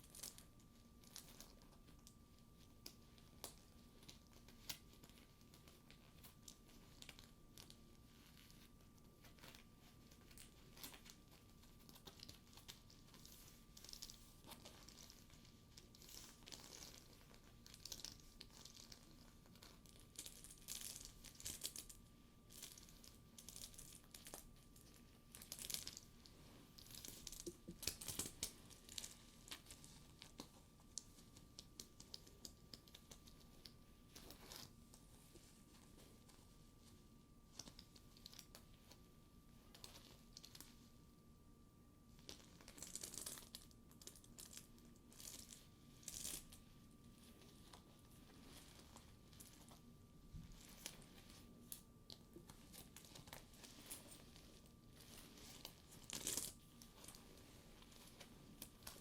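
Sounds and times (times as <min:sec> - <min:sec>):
faint steady hum: 0:00.0 - 0:59.0
leather purse crinkling: 0:22.5 - 0:26.1, 0:26.8 - 0:34.8, 0:42.2 - 0:59.0.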